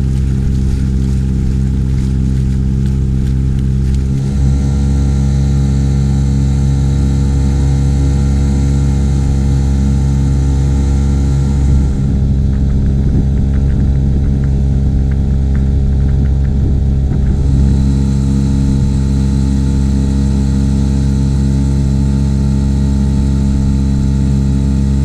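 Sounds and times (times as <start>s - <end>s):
outboard motor running: 0.0s - 25.0s.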